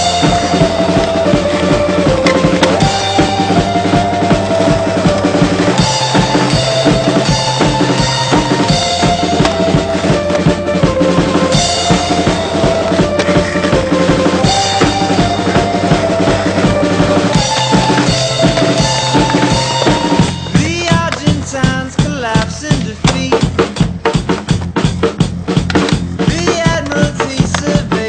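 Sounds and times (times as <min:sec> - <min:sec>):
sustained melodic tones: 0:00.0 - 0:22.0
drum kit beat: 0:00.0 - 0:28.0.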